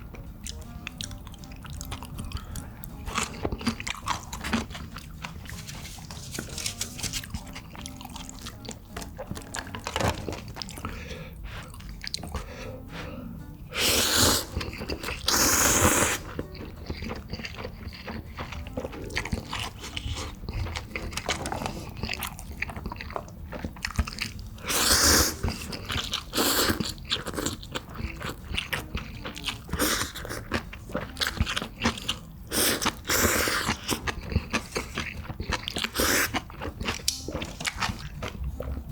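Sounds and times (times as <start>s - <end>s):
person chewing crunchy food: 0.0s - 12.7s, 13.7s - 38.9s.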